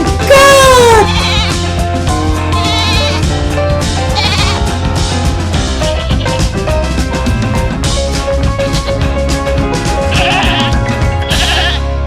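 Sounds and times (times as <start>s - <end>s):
background music with beat: 0.0s - 12.0s
bleating animal cries: 0.5s - 1.7s, 2.5s - 3.2s, 4.2s - 4.7s, 10.1s - 11.9s.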